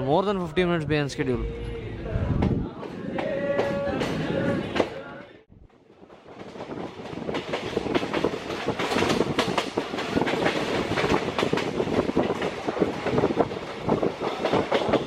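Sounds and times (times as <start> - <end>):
train wheels clacking over rail joints: 5.7 - 15.0.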